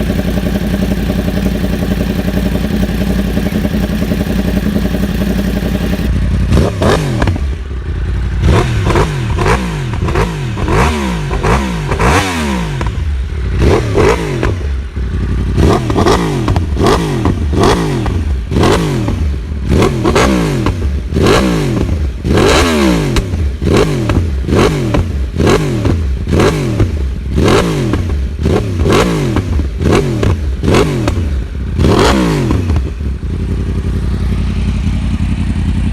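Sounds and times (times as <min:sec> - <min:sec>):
motorcycle engine revving and idling: 0:00.0 - 0:35.9.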